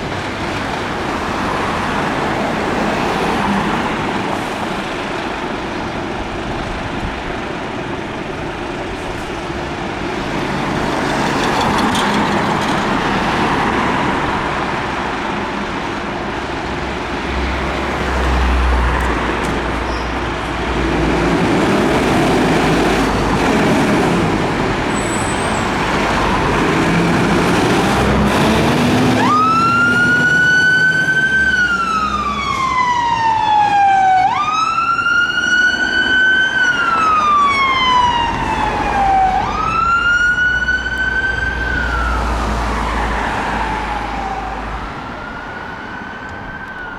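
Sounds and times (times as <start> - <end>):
road traffic: 0.0 - 46.9
fire engine wail siren: 20.8 - 46.9.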